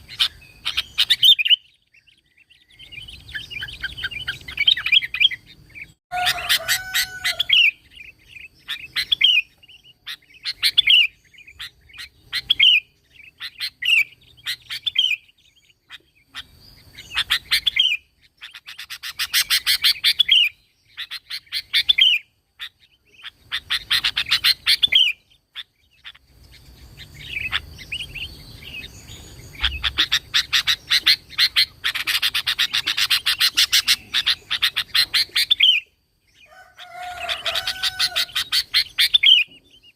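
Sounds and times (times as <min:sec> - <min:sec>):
bulbul singing whistled phrases: 0:00.0 - 0:39.9
rapid chattering bird notes: 0:22.6 - 0:35.8.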